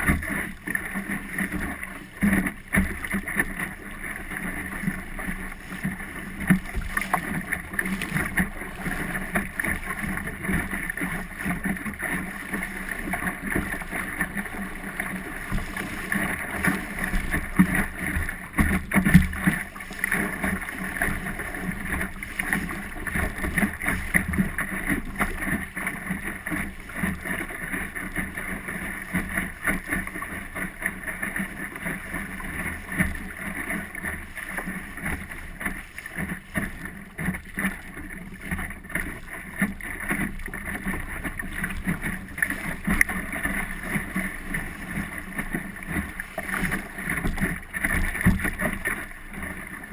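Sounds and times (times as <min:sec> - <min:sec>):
water splashing against hull: 0:00.0 - 0:49.9
small knocks on hull: 0:05.9 - 0:10.7, 0:13.1 - 0:25.6, 0:45.0 - 0:49.0.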